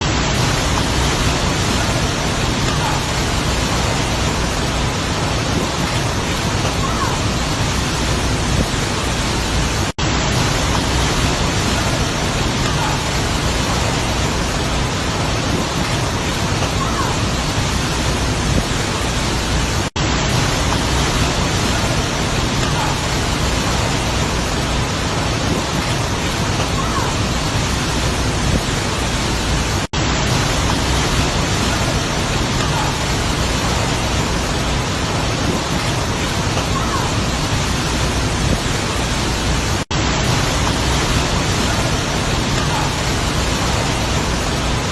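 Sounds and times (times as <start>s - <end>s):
heavy rain and wind: 0.0s - 44.9s.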